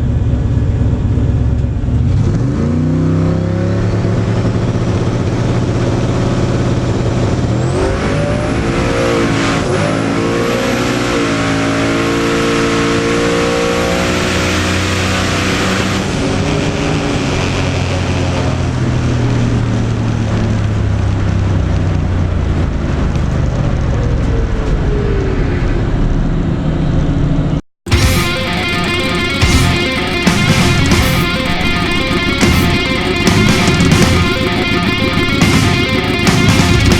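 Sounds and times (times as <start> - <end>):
drag car engine accelerating: 1.1 - 19.0, 27.9 - 36.9
rock music: 27.9 - 36.9.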